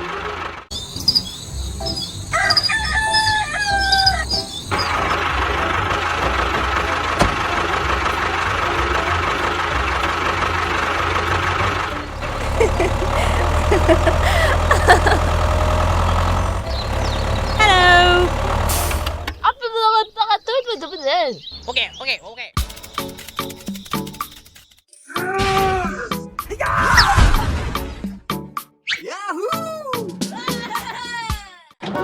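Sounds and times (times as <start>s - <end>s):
rooster crowing: 2.2s - 4.4s.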